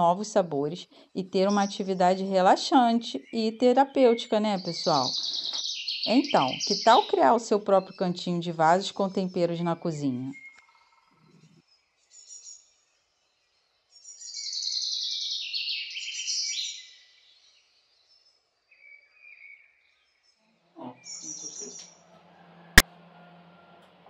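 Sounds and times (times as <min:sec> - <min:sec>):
bird chirping trill: 0:00.0 - 0:12.8, 0:13.9 - 0:17.4, 0:21.0 - 0:21.9.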